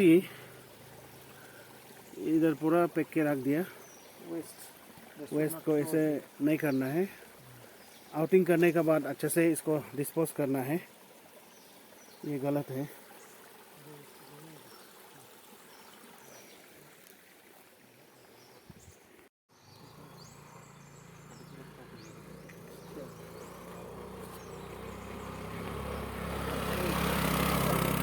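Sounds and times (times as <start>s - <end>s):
small birds chirping: 0.0s - 10.8s, 11.4s - 17.2s, 17.8s - 28.0s
vehicle engine humming: 19.6s - 28.0s.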